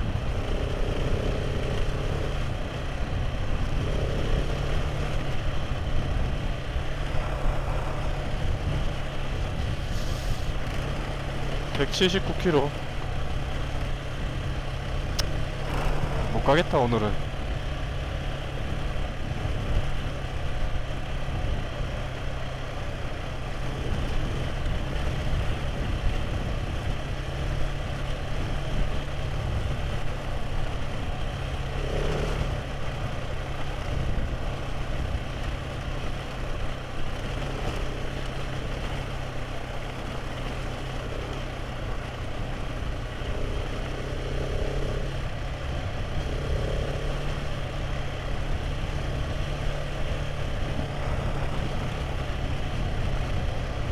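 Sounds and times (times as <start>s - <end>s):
motorcycle engine running: 0.0s - 53.9s
wind and road noise: 0.0s - 53.9s.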